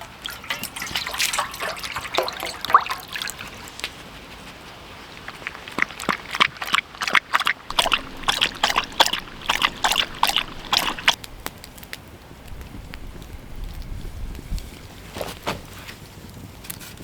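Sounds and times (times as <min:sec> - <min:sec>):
water sloshing: 0:00.0 - 0:04.0, 0:07.3 - 0:11.8, 0:12.4 - 0:15.1.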